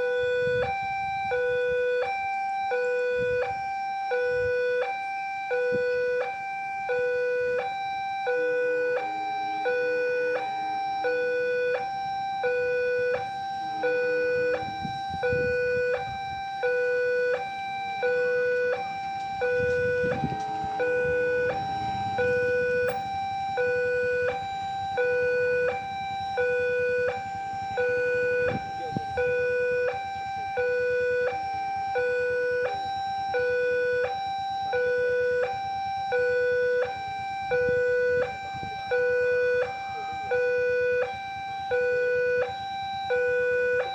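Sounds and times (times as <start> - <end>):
two-tone level-crossing alarm: 0.0 - 43.9
low rumble: 18.9 - 23.6.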